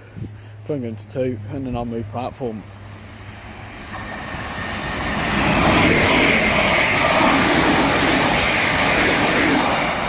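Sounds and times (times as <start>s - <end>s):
electric train passing: 2.0s - 10.0s.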